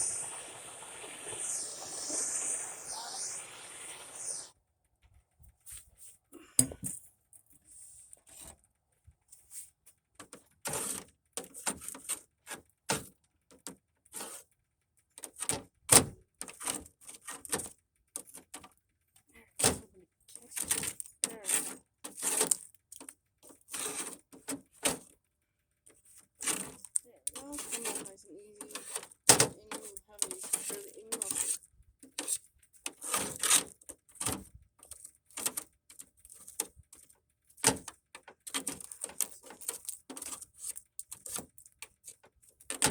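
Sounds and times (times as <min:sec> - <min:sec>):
ice being broken and scraped: 0:29.7 - 0:31.6.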